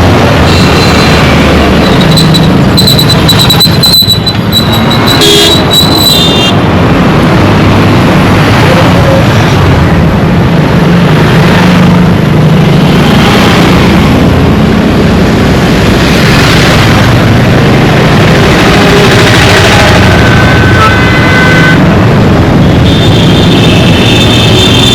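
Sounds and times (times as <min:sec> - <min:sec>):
dense road traffic: 0:00.0 - 0:24.9
high squeal: 0:00.5 - 0:06.4.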